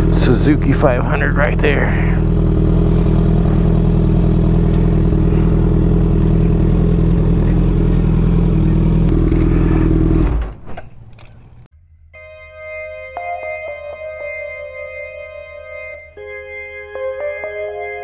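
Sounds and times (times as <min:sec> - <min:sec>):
motorcycle engine idling: 0:00.0 - 0:10.2.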